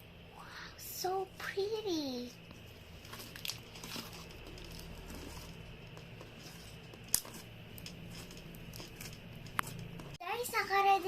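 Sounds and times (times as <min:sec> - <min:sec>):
low steady hum: 0:00.0 - 0:11.0
handling small objects: 0:03.0 - 0:10.2.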